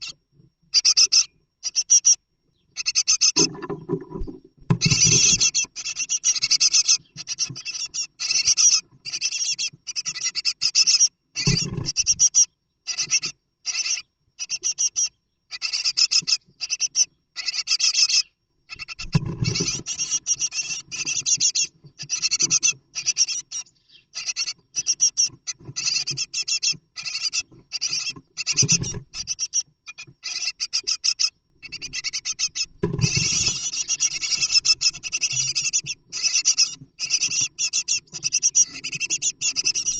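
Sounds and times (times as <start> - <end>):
birds scratching and hissing: 2.8 - 39.9.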